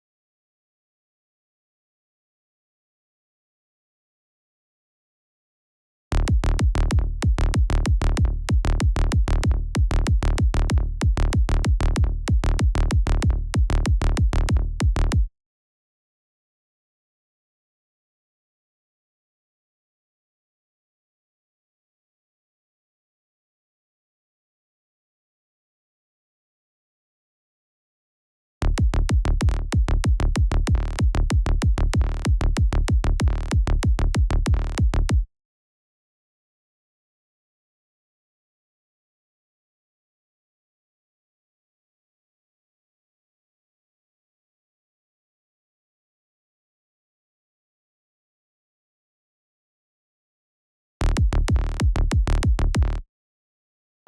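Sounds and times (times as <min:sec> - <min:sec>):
synth bass: 0:06.1 - 0:15.3, 0:28.6 - 0:35.3, 0:51.0 - 0:53.0
electronic kick drum: 0:06.2 - 0:15.3, 0:28.7 - 0:35.3, 0:51.0 - 0:53.0.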